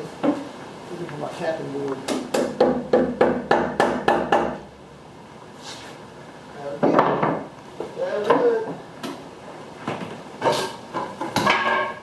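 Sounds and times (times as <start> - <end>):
hammer knocking on wood: 2.1 - 4.6.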